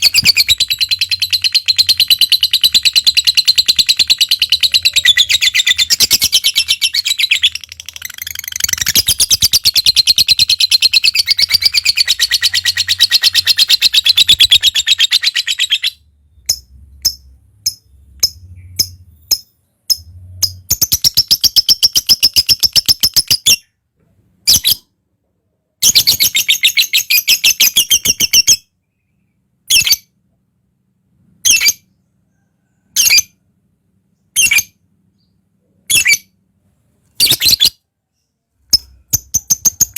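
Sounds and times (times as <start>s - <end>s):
lovebird chattering trill: 0.0s - 23.7s.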